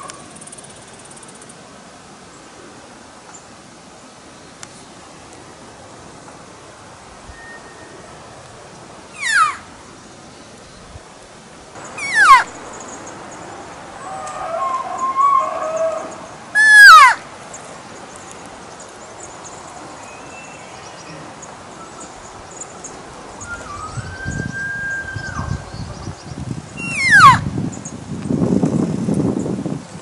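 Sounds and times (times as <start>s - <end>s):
elk calling: 9.1s - 9.7s, 11.8s - 12.6s, 14.0s - 17.2s, 26.8s - 27.4s.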